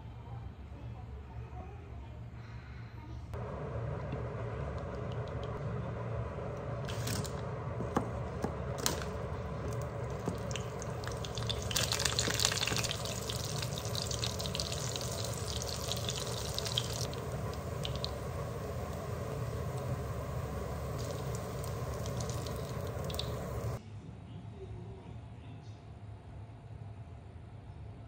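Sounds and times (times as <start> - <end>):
food sizzling in hot oil: 6.9 - 23.8
oil pouring into a pan: 8.4 - 23.8.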